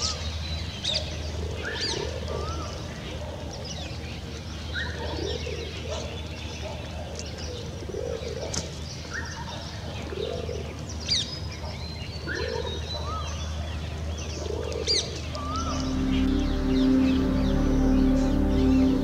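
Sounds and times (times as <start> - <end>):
background music: 15.4 - 19.0
birdsong low note: 15.4 - 19.0.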